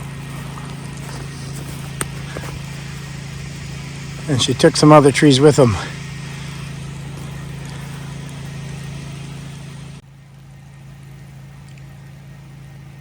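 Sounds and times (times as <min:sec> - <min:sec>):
even hiss: 0:00.0 - 0:10.0
low engine-like hum: 0:00.0 - 0:13.0.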